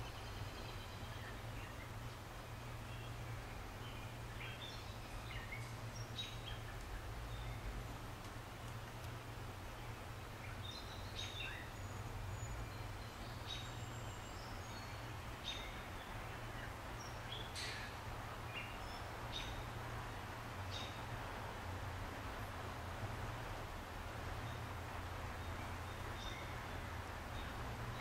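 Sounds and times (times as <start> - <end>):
background hiss: 0.0 - 28.0.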